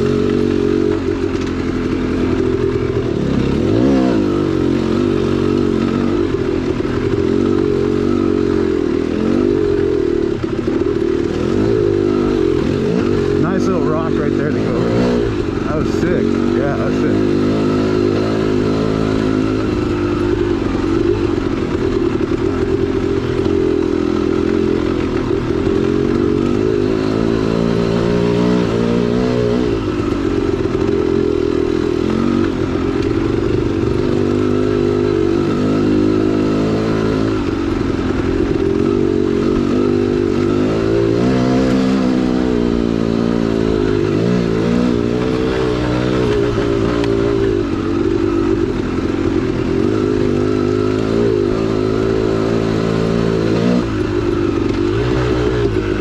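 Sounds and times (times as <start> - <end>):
two-stroke engine revving: 0.0 - 56.0.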